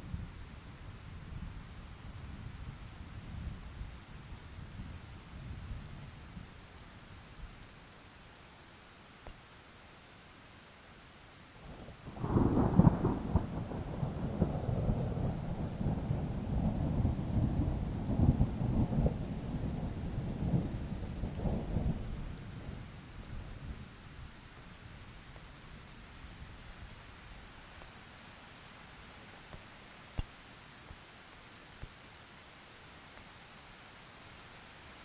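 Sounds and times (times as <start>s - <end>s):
light rain hissing: 0.0s - 35.0s
thunder rumbling: 12.1s - 23.4s.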